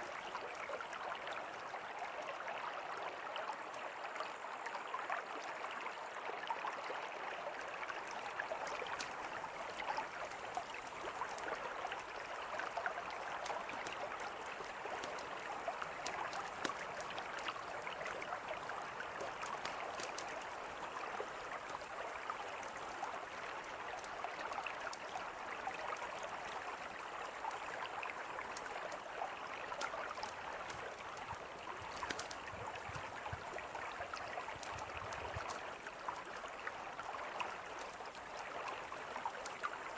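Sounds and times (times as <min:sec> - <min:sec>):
river flowing: 0:00.0 - 0:39.9
campfire crackling: 0:08.4 - 0:21.9, 0:29.7 - 0:36.5.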